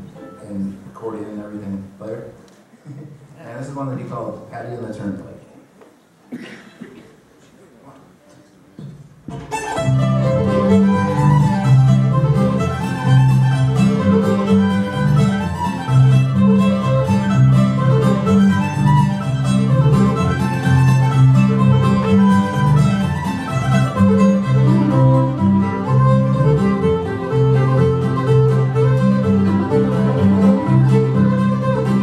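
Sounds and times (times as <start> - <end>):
old-time string band playing: 0.0 - 1.6, 9.3 - 32.0.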